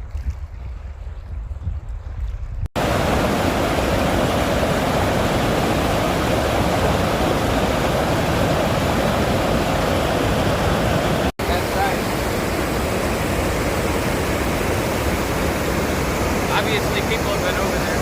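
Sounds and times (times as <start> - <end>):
wind rumble on microphone: 0.0 - 11.3
river water rushing over rapids: 2.8 - 18.0.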